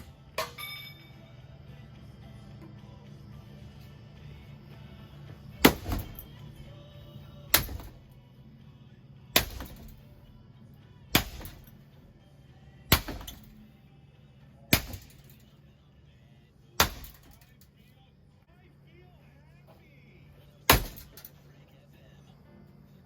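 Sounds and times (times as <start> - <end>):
steady low hum: 0.0 - 23.0
sharp crashing impacts: 5.6 - 6.3, 7.5 - 8.1, 9.4 - 10.0, 11.1 - 11.8, 12.9 - 13.5, 14.7 - 15.3, 16.8 - 17.4, 20.7 - 21.3.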